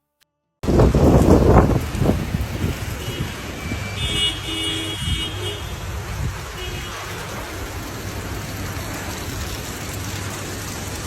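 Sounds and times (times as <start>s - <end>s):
street noise: 0.6s - 11.0s
vehicle horn sounding: 2.9s - 7.1s.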